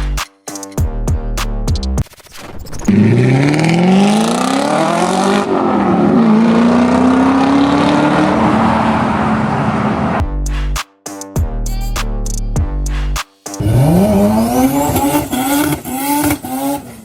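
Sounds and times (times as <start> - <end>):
car engine accelerating hard: 2.9 - 10.2, 13.6 - 17.0.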